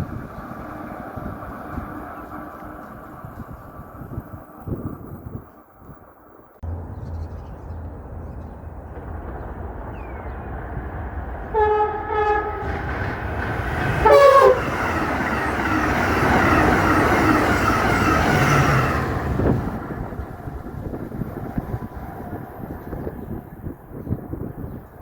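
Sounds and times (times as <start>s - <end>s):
train wheels on rails: 0.0s - 25.0s
train horn blasts: 11.4s - 13.0s, 13.8s - 15.5s.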